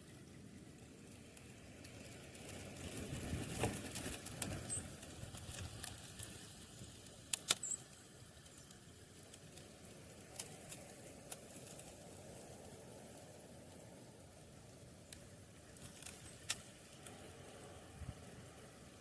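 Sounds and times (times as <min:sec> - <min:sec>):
faint high chirps: 0:07.6 - 0:08.7.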